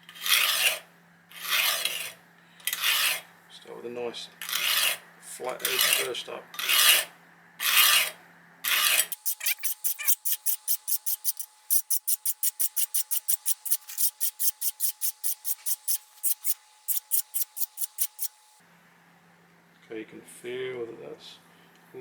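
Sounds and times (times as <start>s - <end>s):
metal file rasping on knife: 0.1s - 0.8s, 1.4s - 3.2s, 4.4s - 5.0s, 5.7s - 18.5s.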